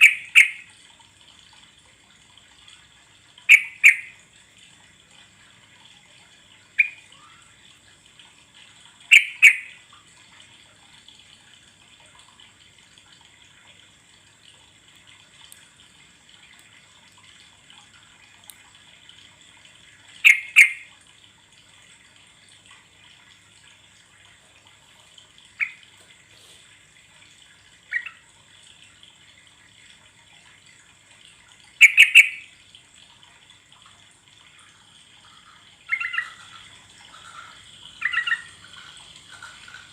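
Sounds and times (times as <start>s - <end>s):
bulbul calling: 0.0s - 0.6s, 3.5s - 4.2s, 9.1s - 9.8s, 20.2s - 20.9s, 31.8s - 32.5s, 35.9s - 36.4s, 38.0s - 38.6s
faint steady hiss: 0.0s - 39.9s.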